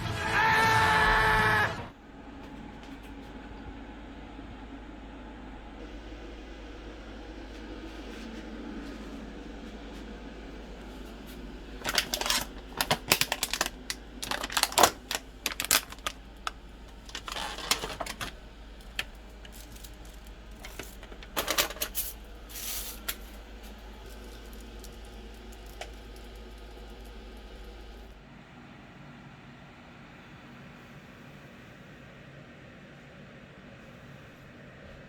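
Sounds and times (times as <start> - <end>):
low steady hum: 1.0 - 35.0
small hard objects clattering: 11.8 - 27.8.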